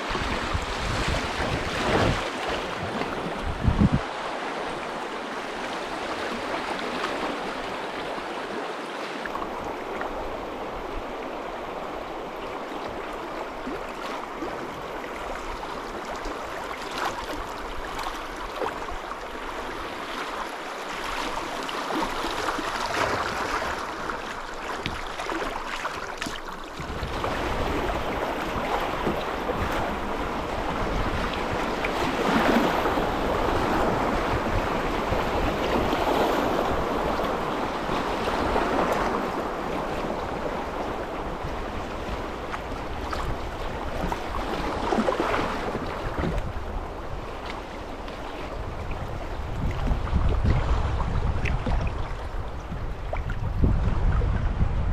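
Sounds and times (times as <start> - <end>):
wind rumble on microphone: 0.0 - 8.4, 26.2 - 54.9
flowing river water: 0.0 - 54.9.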